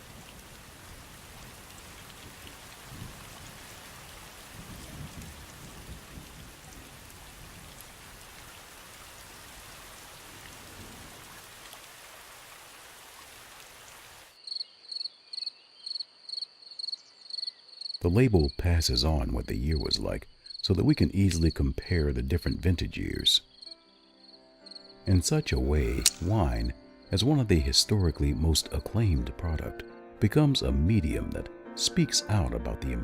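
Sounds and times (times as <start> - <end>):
rain falling: 0.0 - 14.4
cricket chirping: 14.4 - 25.1.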